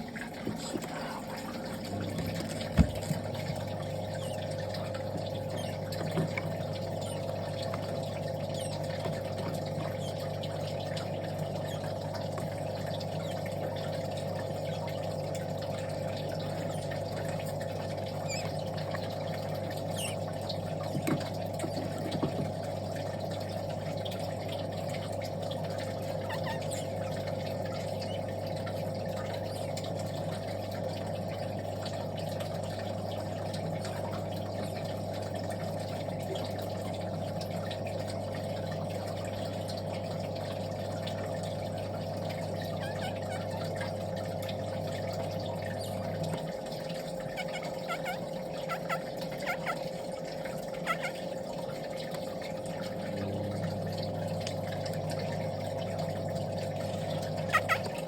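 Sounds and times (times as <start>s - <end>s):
steady mechanical hum: 0.0s - 58.0s.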